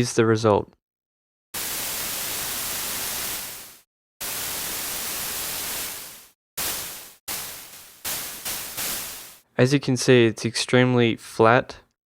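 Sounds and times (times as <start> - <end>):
synthesized white noise notes: 1.6 - 9.4.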